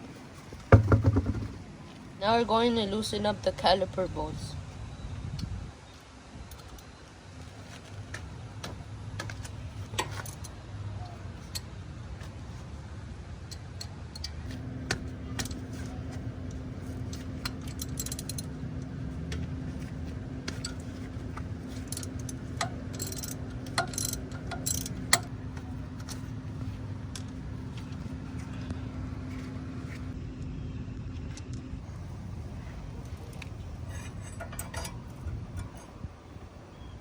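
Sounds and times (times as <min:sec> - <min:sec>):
steady low hum: 0:00.0 - 0:37.0
metal tools clinking on brake caliper: 0:06.5 - 0:12.7, 0:13.5 - 0:30.2, 0:32.5 - 0:36.1.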